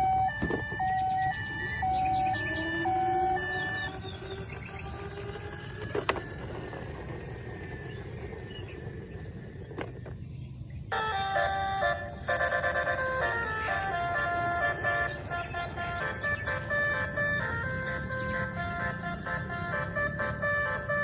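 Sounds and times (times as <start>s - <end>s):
toy electronic beeping jingle: 0.0s - 5.6s, 10.9s - 21.0s.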